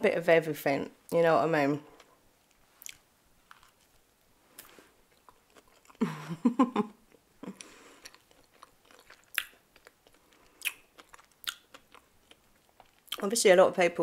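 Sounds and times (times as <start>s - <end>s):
person chewing with lip smacks: 2.0s - 6.0s, 7.1s - 13.2s.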